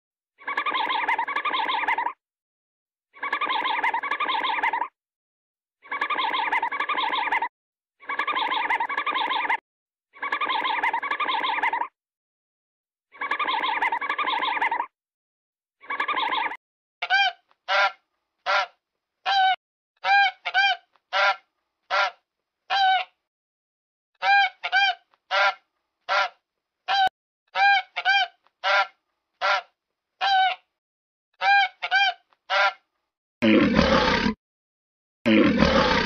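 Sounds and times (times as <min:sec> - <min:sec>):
goose-like honks: 0:24.2 - 0:29.7
rough roar-like animal call: 0:33.4 - 0:34.4, 0:35.3 - 0:36.0.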